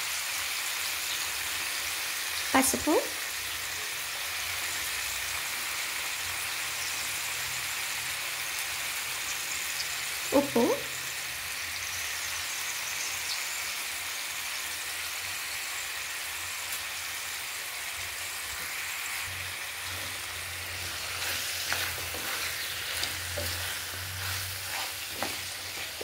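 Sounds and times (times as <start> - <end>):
food sizzling in oil: 0.0 - 26.0
stirring knocks and scrapes: 19.8 - 26.0.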